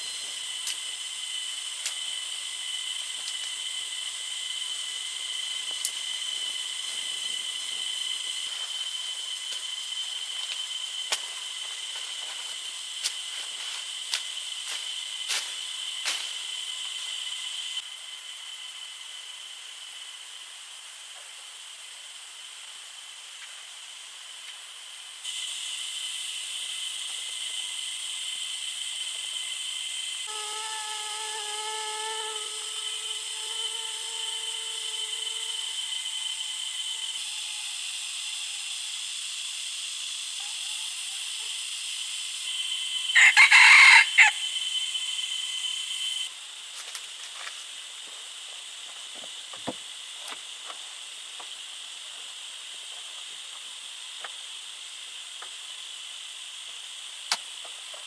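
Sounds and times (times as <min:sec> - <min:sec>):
high-pitched insect drone: 0:00.0 - 0:58.0
rooster crowing: 0:43.1 - 0:44.5.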